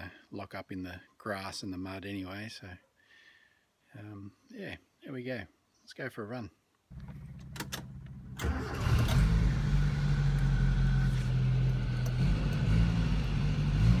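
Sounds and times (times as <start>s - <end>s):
clicks: 6.9s - 8.2s, 11.6s - 12.7s
car engine running: 6.9s - 14.0s.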